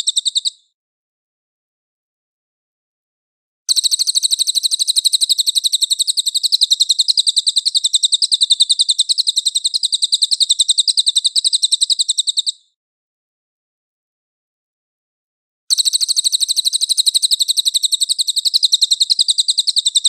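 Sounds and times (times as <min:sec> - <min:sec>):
songbird harsh trill: 0:15.7 - 0:20.0.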